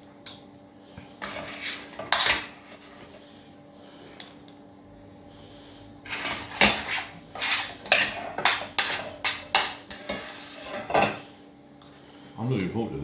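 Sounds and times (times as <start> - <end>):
spoon and fork scraping a dish: 1.2 - 3.2, 6.0 - 11.3.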